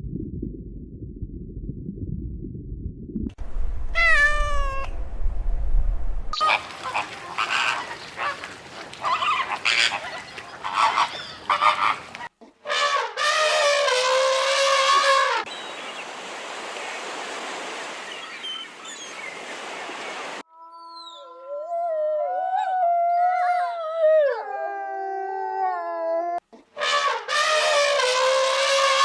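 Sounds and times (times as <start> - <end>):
waterfowl honking: 6.4 - 15.5.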